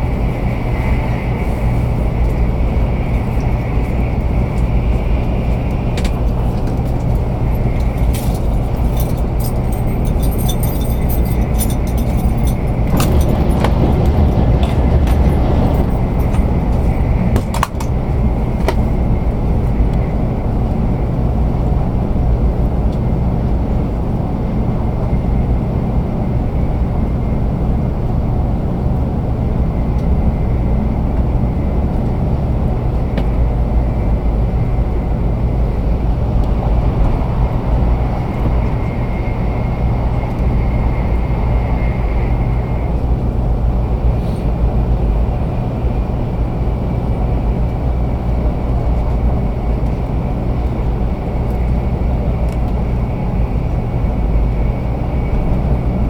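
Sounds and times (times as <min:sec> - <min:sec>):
train cabin rumble with hiss: 0:00.0 - 0:56.0
clicks and rattles: 0:06.0 - 0:18.0.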